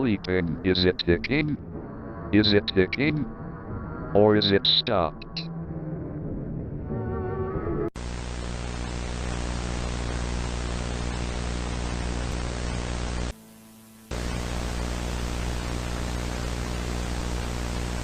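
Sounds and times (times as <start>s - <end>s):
loud static hiss: 8.0s - 18.0s
steady electrical hum: 8.0s - 18.0s.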